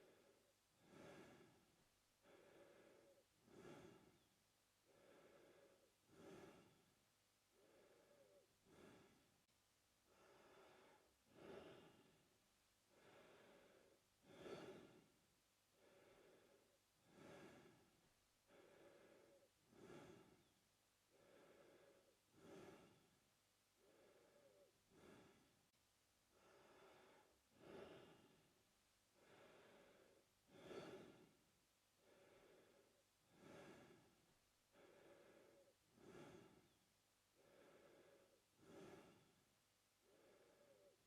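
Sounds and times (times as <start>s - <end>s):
man breathing through mouth: 0.0s - 4.3s, 4.9s - 6.8s, 7.5s - 9.3s, 10.1s - 12.2s, 12.9s - 15.1s, 15.8s - 20.5s, 21.1s - 23.1s, 23.8s - 25.5s, 26.3s - 28.5s, 29.2s - 31.4s, 32.0s - 36.8s, 37.4s - 39.4s.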